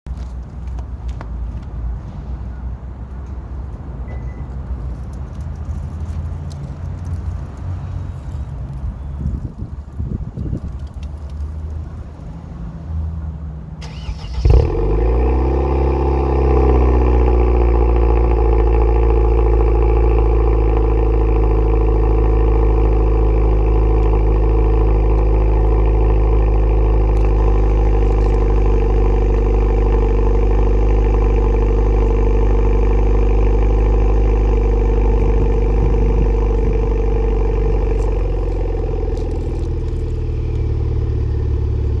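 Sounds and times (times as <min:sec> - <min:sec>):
car engine cold start and idle: 0:13.8 - 0:42.0.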